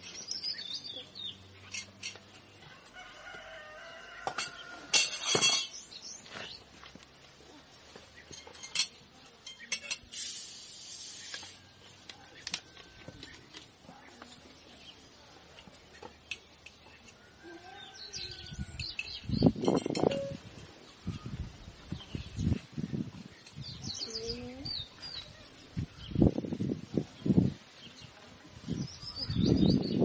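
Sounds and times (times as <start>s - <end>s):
dishes and utensils clinking: 1.6s - 2.5s, 4.3s - 5.8s, 8.2s - 10.2s, 18.8s - 20.5s.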